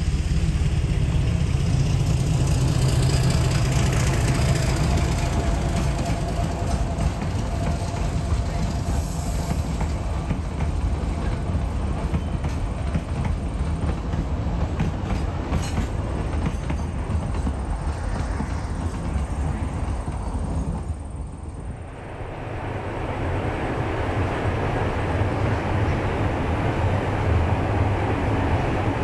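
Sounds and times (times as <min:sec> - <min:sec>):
train wheels clicking over rail joints: 0:00.0 - 0:21.5
train rumbling: 0:00.0 - 0:29.0.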